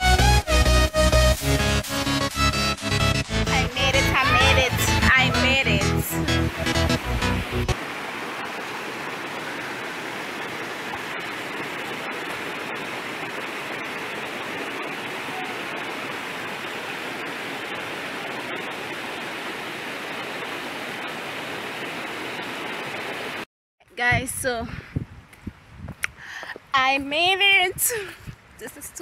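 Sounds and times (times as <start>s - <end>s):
flowing water rushing: 1.0s - 23.5s.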